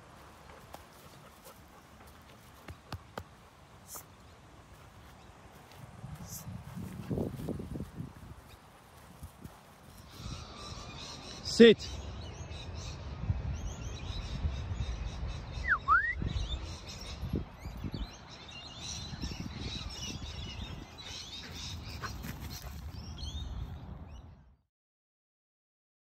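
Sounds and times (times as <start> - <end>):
small birds chirping: 0.2 - 24.4
whistled note: 15.7 - 16.3.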